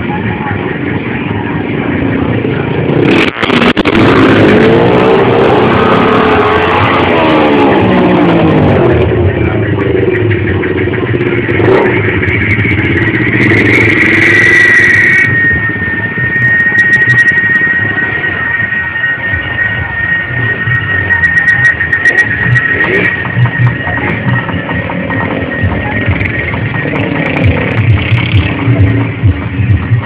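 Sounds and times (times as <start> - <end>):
motorcycle engines revving: 0.0 - 30.0.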